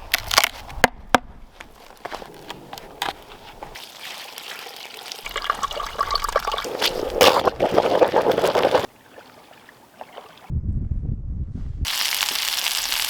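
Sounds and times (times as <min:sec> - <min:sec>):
water pouring and splashing: 0:03.2 - 0:10.5, 0:11.9 - 0:13.0.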